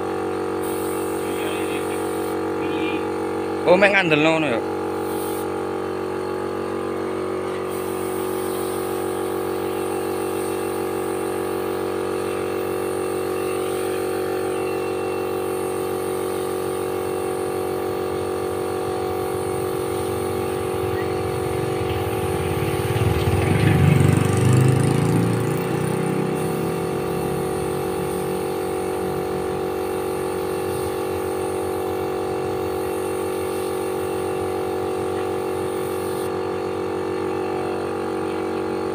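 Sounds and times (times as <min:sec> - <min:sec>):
motor running with steady hum: 0:00.0 - 0:38.9
low rumble: 0:19.7 - 0:24.4.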